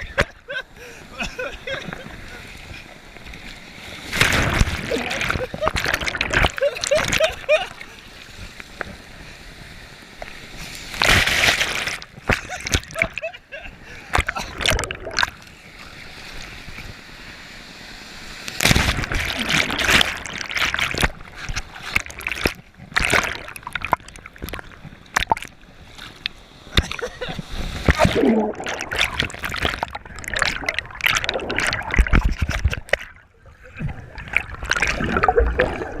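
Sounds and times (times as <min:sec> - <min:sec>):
lake water splashing: 0:18.6 - 0:36.0.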